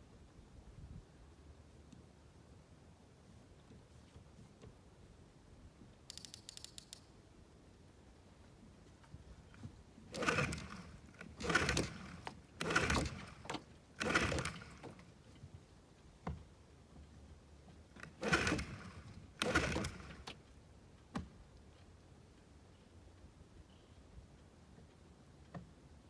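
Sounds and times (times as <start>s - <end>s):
sharp clicks: 6.1s - 7.1s
recoil starter pulls: 10.0s - 15.2s, 17.9s - 20.5s.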